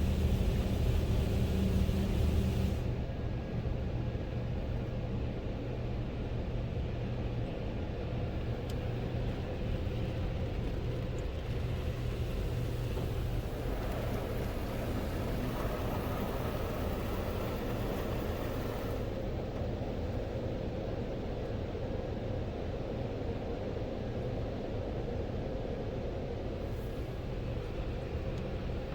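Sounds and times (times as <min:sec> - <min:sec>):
rushing water spray: 0:00.0 - 0:02.9, 0:11.6 - 0:19.2
car wash machine hum: 0:00.0 - 0:03.2, 0:08.2 - 0:21.4, 0:26.6 - 0:28.9.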